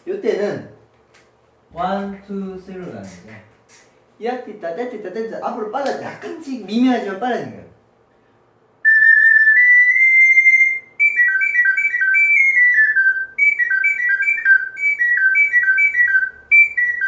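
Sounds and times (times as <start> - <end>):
ocarina melody: 8.8 - 17.0.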